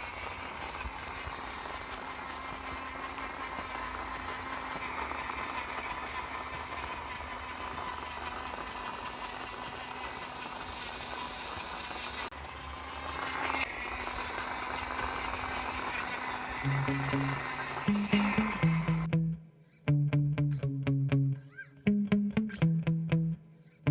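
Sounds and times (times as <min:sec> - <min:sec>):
small electric motor humming and rattling: 0:00.0 - 0:19.1.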